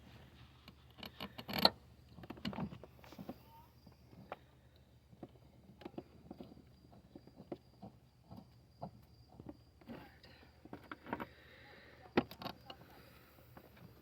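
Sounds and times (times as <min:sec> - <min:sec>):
tools clicking and knocking: 0:00.7 - 0:02.8.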